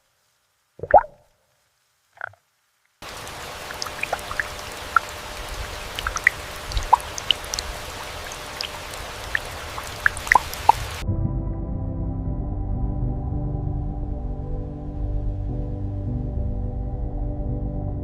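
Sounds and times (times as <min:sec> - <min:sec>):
rain drops plinking: 0:00.0 - 0:11.0
steady rain falling: 0:00.0 - 0:11.0.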